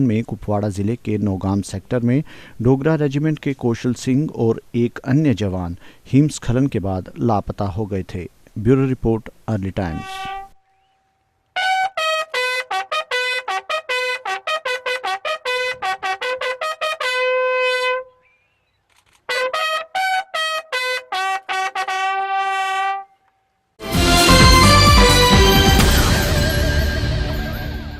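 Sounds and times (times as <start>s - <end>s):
bugle call on brass horn: 9.8s - 10.6s, 11.6s - 18.2s, 19.3s - 23.2s
loud full music: 23.8s - 27.9s.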